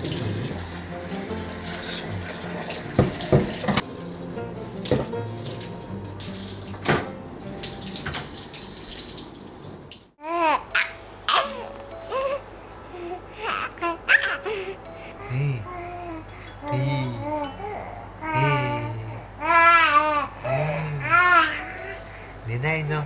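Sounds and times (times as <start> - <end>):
light background music: 0.0 - 9.0, 10.6 - 23.0
water splashing in bathtub: 4.8 - 10.1
baby cooing and babbling: 10.2 - 22.2.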